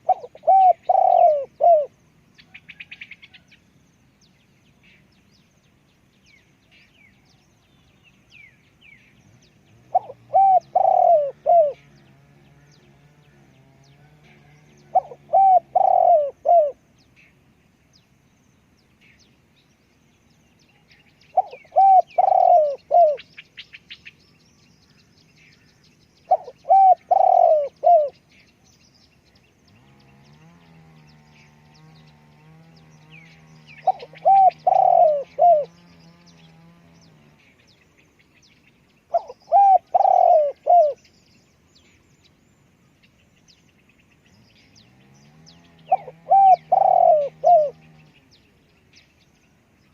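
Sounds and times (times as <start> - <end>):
dove cooing: 0.0 - 2.0, 9.8 - 12.4, 14.0 - 16.8, 21.3 - 23.3, 26.3 - 28.2, 33.3 - 36.8, 39.1 - 41.0, 45.6 - 48.2
small birds twittering: 0.0 - 49.9.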